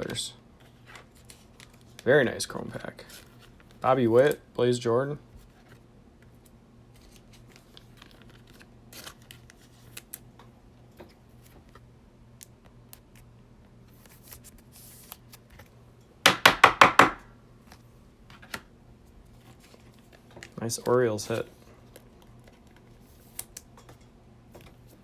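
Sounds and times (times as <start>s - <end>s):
cards and packaging rustling: 0.0s - 4.4s, 5.3s - 10.4s, 11.0s - 15.8s, 19.3s - 25.0s.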